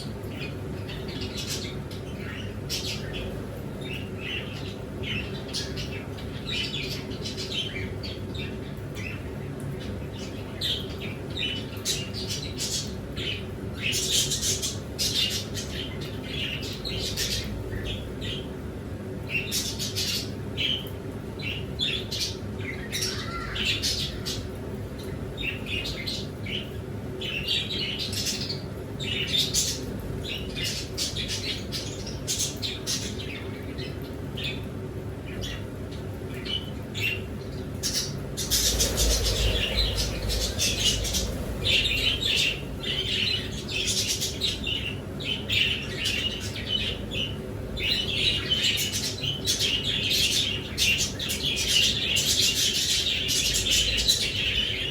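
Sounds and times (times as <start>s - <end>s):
birds chirping and squawking: 19.3s - 24.6s, 36.4s - 54.9s
low rumble: 37.8s - 45.0s
wing flapping: 37.9s - 44.4s.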